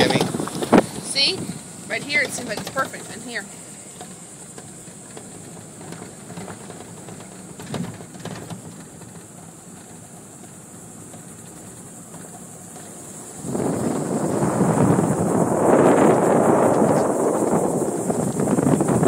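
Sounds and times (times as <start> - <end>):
wind on microphone: 0.0 - 3.4, 12.8 - 19.0
truck engine running: 0.0 - 19.0.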